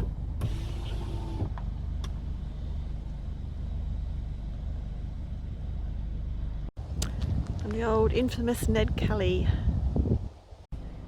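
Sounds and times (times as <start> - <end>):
car engine low rumble: 0.0 - 11.0.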